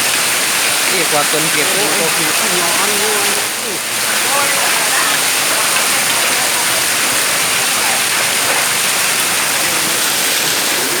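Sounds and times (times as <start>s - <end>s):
hail and heavy rain pelting: 0.0s - 11.0s.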